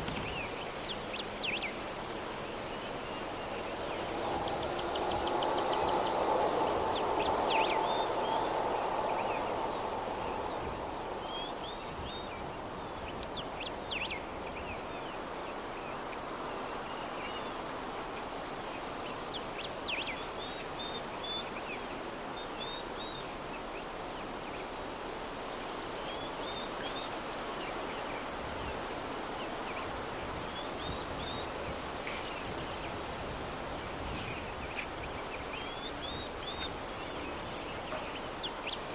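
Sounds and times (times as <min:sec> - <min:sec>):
soft breeze: 0:00.0 - 0:38.9
small birds chirping: 0:33.8 - 0:38.9.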